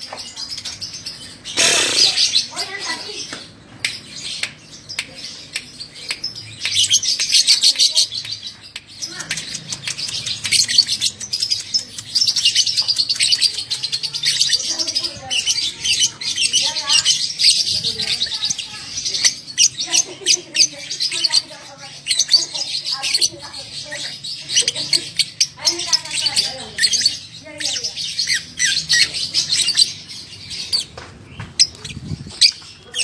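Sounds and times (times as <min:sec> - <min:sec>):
lovebird chattering trill: 0:01.3 - 0:03.0, 0:09.0 - 0:30.9.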